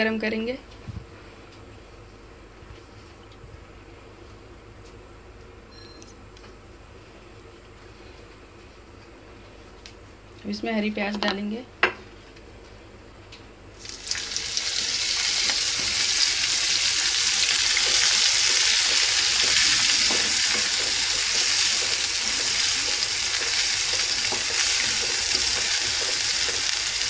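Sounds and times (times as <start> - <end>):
onions sizzling in hot oil: 13.8 - 27.0.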